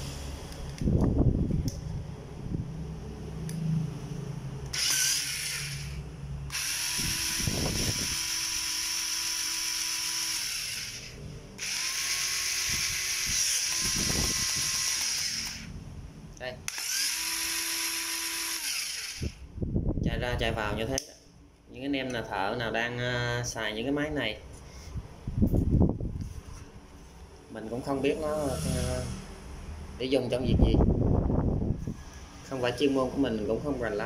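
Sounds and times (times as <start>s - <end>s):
power tool motor running: 4.7s - 15.8s, 16.7s - 19.4s.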